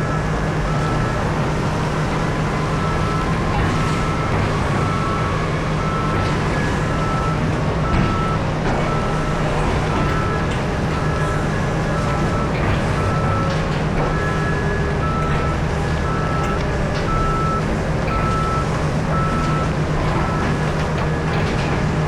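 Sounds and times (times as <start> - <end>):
deep diesel engine hum: 0.0 - 22.0
reversing alarm beeping: 0.0 - 22.0.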